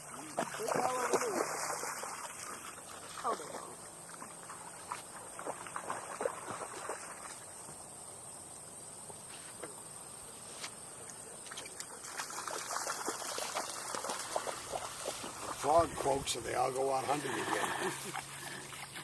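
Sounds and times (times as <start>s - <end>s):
small splashes and clicks: 0.3s - 7.4s, 11.4s - 15.7s.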